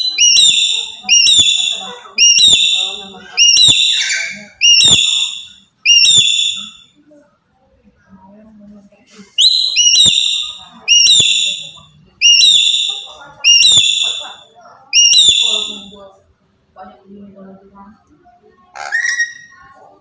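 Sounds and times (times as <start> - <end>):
parrot whistled calls: 0.0 - 6.8, 9.4 - 16.0, 18.8 - 19.6.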